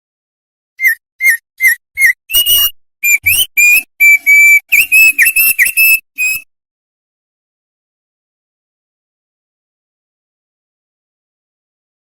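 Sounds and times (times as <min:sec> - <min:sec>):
songbird whistling: 0:00.8 - 0:06.5.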